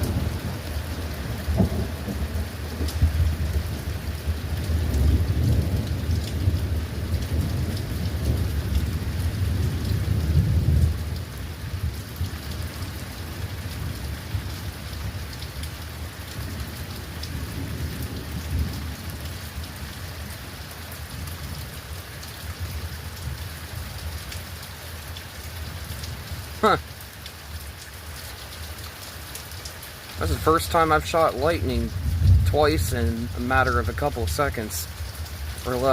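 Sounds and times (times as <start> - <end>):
thunder rumbling: 0.0 - 15.3, 16.3 - 21.9, 30.2 - 35.9
steady rain: 0.0 - 35.9.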